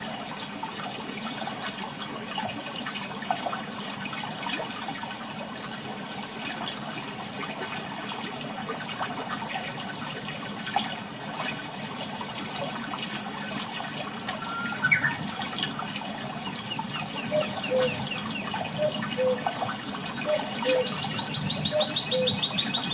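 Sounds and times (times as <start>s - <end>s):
bird calling: 14.4s - 22.9s.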